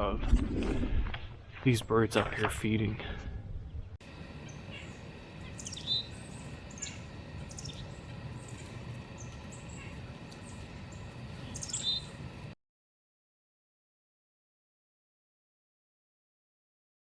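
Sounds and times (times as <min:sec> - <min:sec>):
steady low rumble: 0:03.3 - 0:12.6
small birds chirping: 0:03.6 - 0:12.6.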